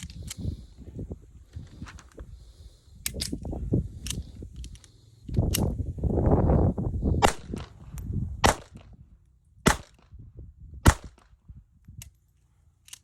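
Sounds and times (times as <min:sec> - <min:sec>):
pistol shots: 0:07.2 - 0:07.8, 0:08.4 - 0:08.8, 0:09.7 - 0:10.0, 0:10.8 - 0:11.2.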